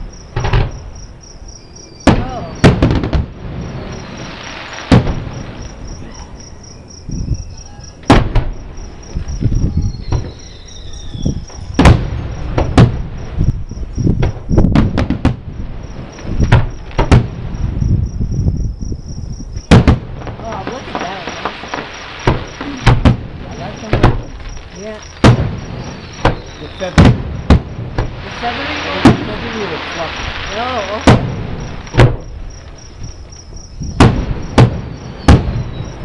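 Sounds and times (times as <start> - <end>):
fireworks bursting: 0.0 - 18.7, 19.4 - 36.0
crickets chirping: 0.0 - 36.0
falling firework whistle: 9.6 - 12.8, 25.7 - 27.0, 33.9 - 36.0.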